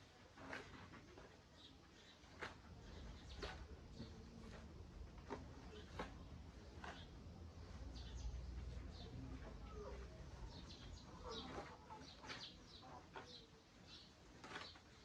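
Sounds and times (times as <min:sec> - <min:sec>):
chickens clucking and cheeping: 0:07.6 - 0:14.2.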